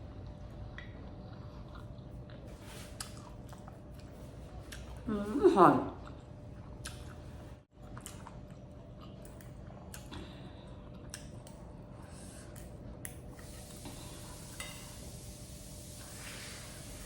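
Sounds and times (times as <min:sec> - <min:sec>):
person chewing food: 0:00.2 - 0:05.0, 0:06.0 - 0:13.3.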